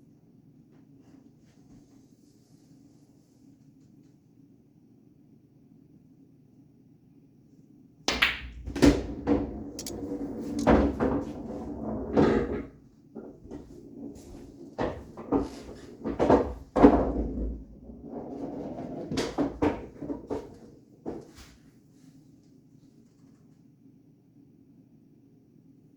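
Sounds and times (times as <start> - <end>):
pool balls rolling: 8.1 - 21.3
pool balls clicking and knocking: 8.1 - 21.4.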